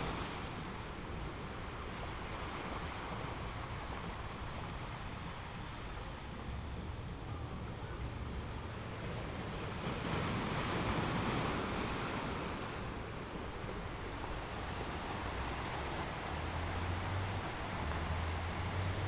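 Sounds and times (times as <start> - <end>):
water rushing: 8.1 - 19.0.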